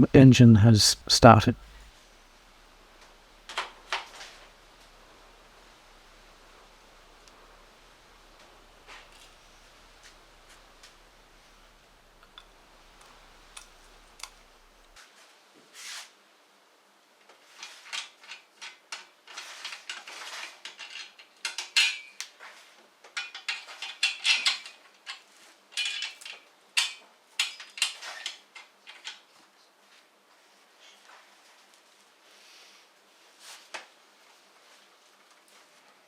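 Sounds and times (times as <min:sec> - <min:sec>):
metal parts and tools clinking: 0:17.9 - 0:22.2, 0:23.2 - 0:29.2.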